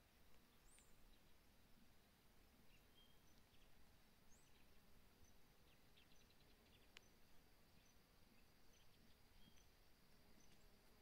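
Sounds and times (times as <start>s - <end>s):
low background noise: 0.0s - 11.0s
soft ticks: 0.2s - 1.0s, 3.3s - 3.7s, 6.7s - 7.2s, 8.8s - 11.0s
faint bird chirps: 0.4s - 1.9s, 2.5s - 11.0s.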